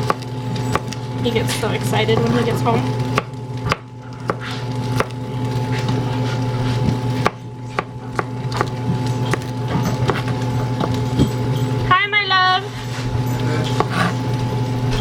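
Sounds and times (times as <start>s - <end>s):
knife chopping on wooden board: 0.0s - 1.0s, 2.1s - 2.5s, 3.1s - 5.2s, 6.7s - 11.3s, 13.7s - 14.2s.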